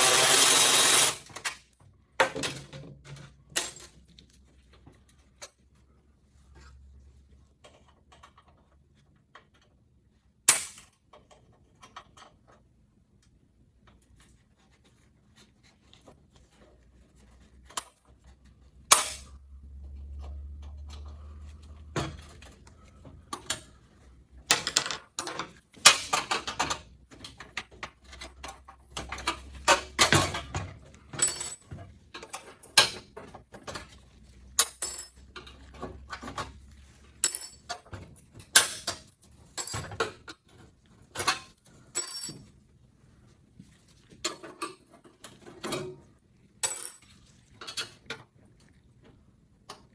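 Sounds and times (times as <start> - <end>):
tools clattering on plastic and metal: 2.2 - 4.0, 24.4 - 34.0, 34.6 - 42.5
faint low hum: 18.4 - 24.5.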